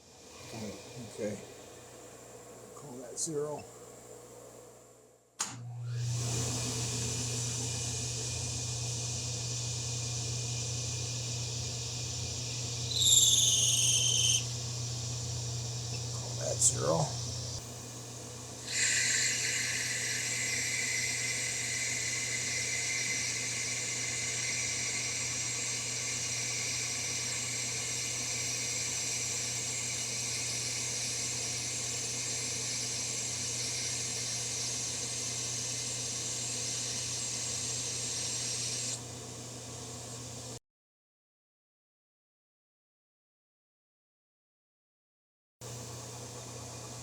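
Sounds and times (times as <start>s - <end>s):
high hiss of cutting tool: 0.0s - 3.6s, 6.0s - 39.0s
metal lathe humming: 6.0s - 39.0s.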